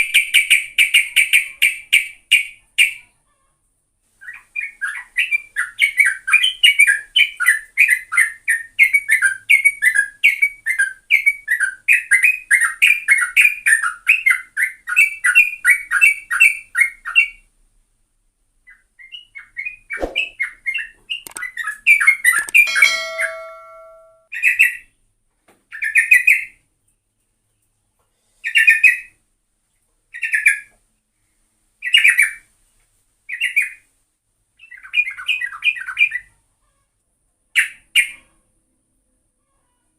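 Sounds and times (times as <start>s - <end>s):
bulbul chattering song: 21.2s - 24.2s.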